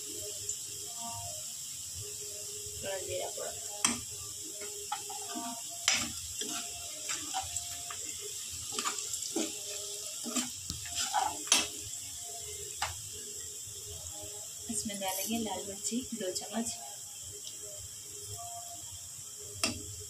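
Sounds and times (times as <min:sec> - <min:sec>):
onions sizzling in hot oil: 0:00.0 - 0:20.0
metal ladle scraping a pan: 0:04.6 - 0:11.9.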